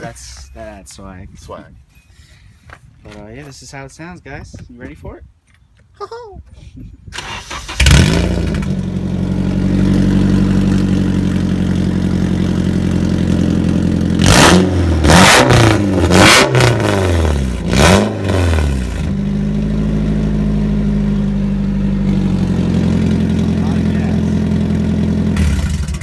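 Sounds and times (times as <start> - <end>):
car engine starting: 7.2 - 26.0
engine revs blipped: 7.2 - 26.0
car engine idling: 7.7 - 26.0.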